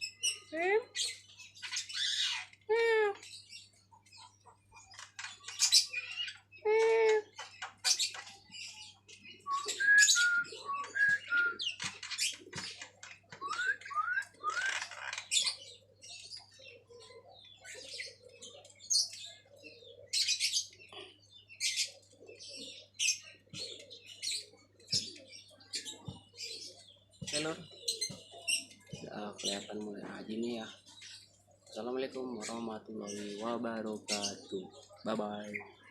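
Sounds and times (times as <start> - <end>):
bird whistling and chattering: 9.3 - 15.6.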